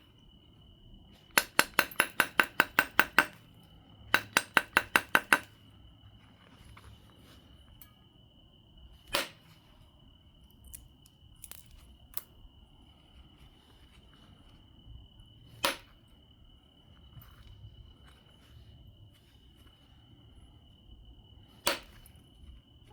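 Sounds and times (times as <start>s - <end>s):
stone flakes clicking off: 10.6s - 12.3s.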